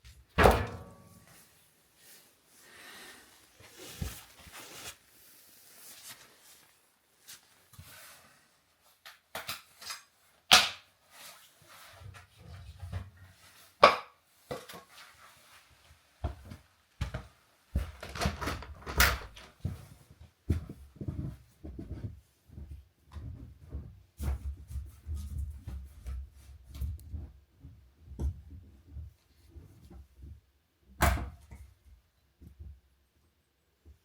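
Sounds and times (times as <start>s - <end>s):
objects being handled and set down: 3.5s - 5.0s, 11.1s - 15.5s.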